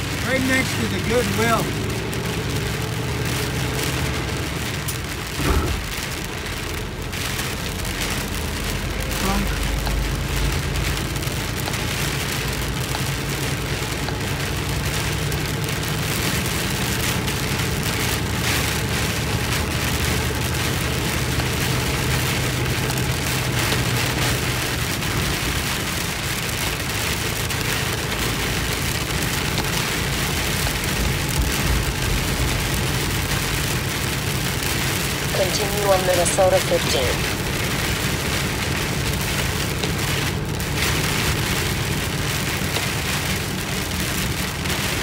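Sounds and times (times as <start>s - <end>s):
car low drone: 0.0s - 45.0s
heavy rain on car roof: 0.0s - 45.0s.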